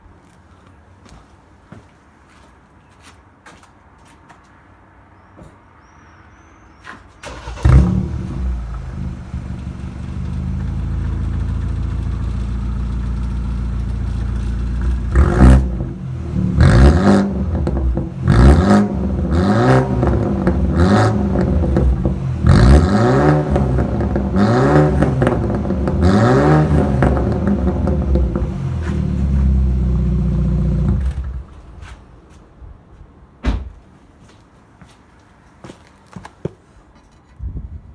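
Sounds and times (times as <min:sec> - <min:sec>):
engine revving in short blips: 0:07.2 - 0:10.9
car engine idling: 0:07.2 - 0:16.6, 0:23.4 - 0:31.5
car engine starting: 0:07.2 - 0:31.7.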